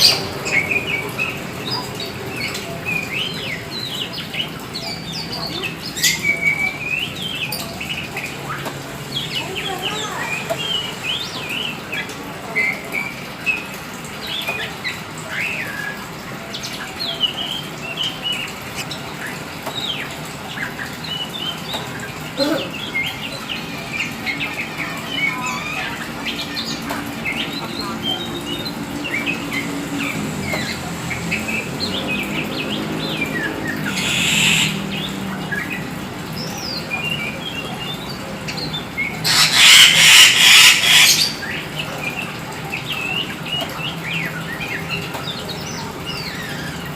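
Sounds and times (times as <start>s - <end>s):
bird chirping and whistling: 33.9s - 34.8s.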